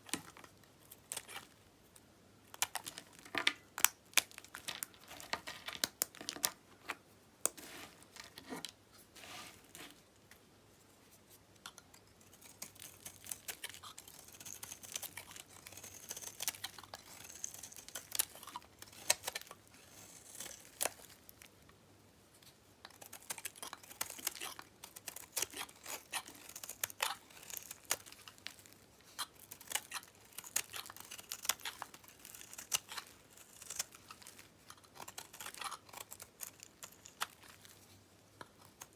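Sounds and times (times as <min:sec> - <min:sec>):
soap being cut crackling: 0:29.2 - 0:37.6.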